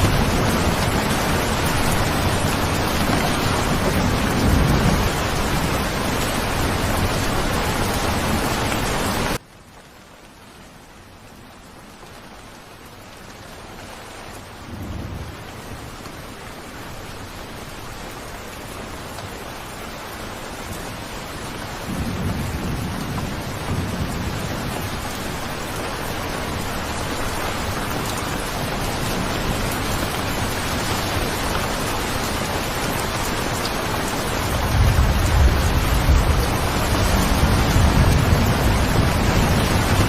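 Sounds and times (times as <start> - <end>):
rolling thunder: 0.0 - 8.4, 21.8 - 26.0, 34.4 - 40.0
steady rain falling: 0.0 - 40.0.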